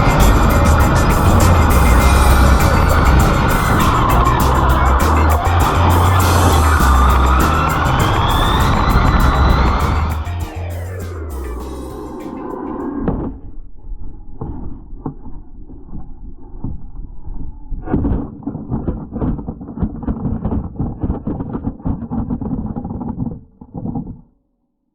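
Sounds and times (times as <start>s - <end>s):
rc car rattling rumble: 0.0s - 12.0s.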